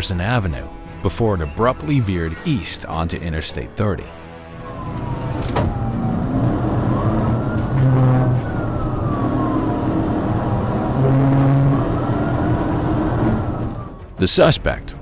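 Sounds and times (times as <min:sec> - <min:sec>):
car engine and road noise: 0:04.2 - 0:14.2
police siren wailing: 0:04.3 - 0:14.4.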